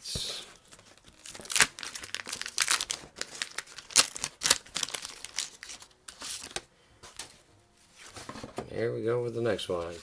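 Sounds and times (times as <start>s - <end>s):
waxed paper wrapper crinkling and tearing: 0.6s - 7.3s.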